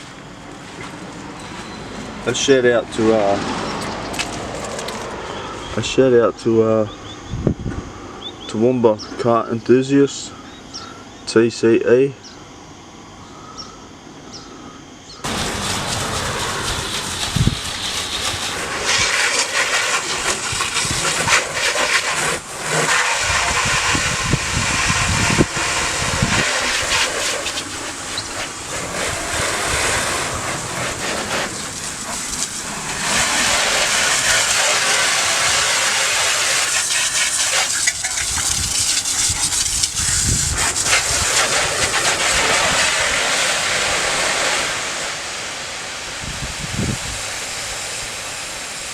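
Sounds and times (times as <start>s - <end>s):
water spraying from washing gun: 0.0s - 5.2s, 15.2s - 48.9s.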